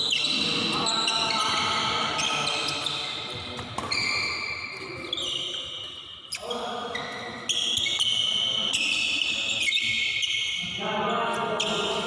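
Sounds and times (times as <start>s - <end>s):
shoes squeaking on court floor: 0.0s - 12.0s
racket hitting shuttlecock: 1.4s - 5.1s.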